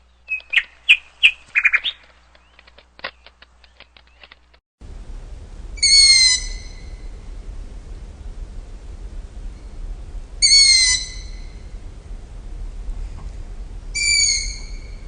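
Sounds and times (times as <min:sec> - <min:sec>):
steady low hum: 0:00.0 - 0:15.0
bird whistled calls: 0:00.2 - 0:02.6, 0:05.8 - 0:07.1, 0:10.4 - 0:11.6, 0:14.0 - 0:15.0.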